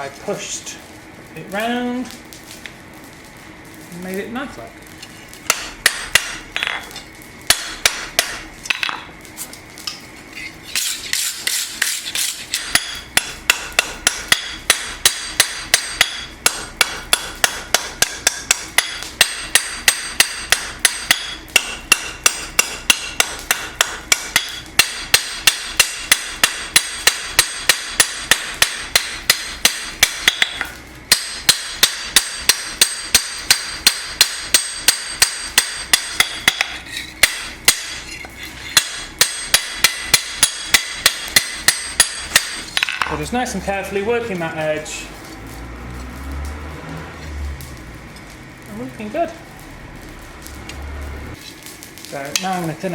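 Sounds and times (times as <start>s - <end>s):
hammer striking steel on anvil: 5.5s - 6.9s, 7.5s - 9.0s, 10.8s - 43.3s.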